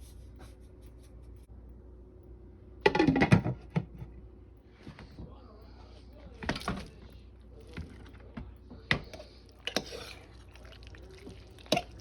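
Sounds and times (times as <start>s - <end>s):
utensils and dishes clinking: 9.0s - 12.0s.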